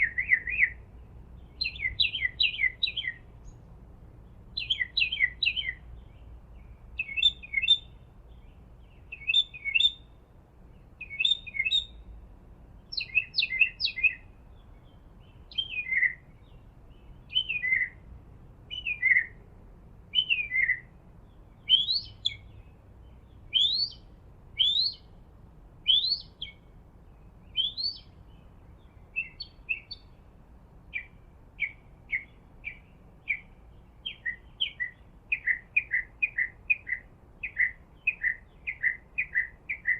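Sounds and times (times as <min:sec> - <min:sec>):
songbird singing whistled phrases: 0:00.0 - 0:00.8, 0:01.4 - 0:03.6, 0:04.5 - 0:10.1, 0:10.7 - 0:12.1, 0:12.8 - 0:18.0, 0:18.7 - 0:19.4, 0:20.1 - 0:20.9, 0:21.5 - 0:25.1, 0:25.8 - 0:30.2, 0:30.9 - 0:39.9
bird chirps: 0:00.0 - 0:12.2, 0:12.8 - 0:18.0, 0:18.7 - 0:19.4, 0:20.1 - 0:25.2, 0:25.8 - 0:30.3, 0:30.9 - 0:39.9.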